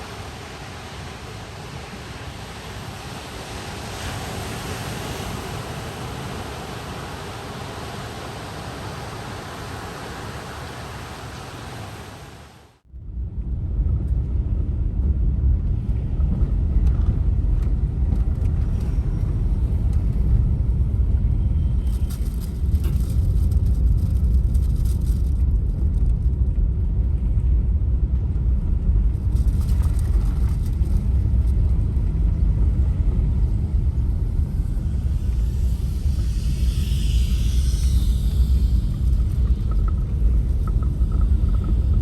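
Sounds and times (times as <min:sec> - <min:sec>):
van road and engine rumble: 0:13.0 - 0:42.0
rattles and hiss: 0:33.8 - 0:42.0.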